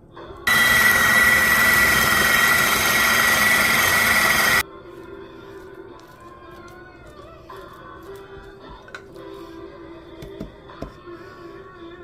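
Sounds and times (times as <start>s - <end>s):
blender running with high whine: 0.5s - 4.6s.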